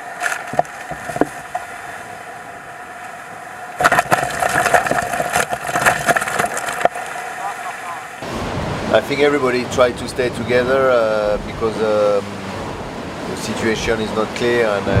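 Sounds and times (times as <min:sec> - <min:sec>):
water rushing past yacht hull: 0:00.0 - 0:15.0.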